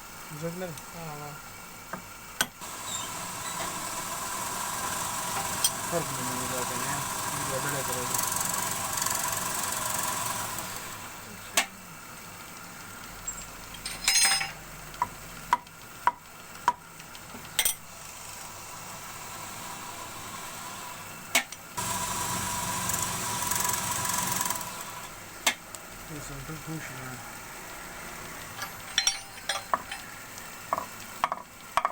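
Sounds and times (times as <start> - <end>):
electric machine hum: 0.0 - 15.4, 17.9 - 31.8
metallic clinks and taps: 13.8 - 14.6, 28.5 - 30.1.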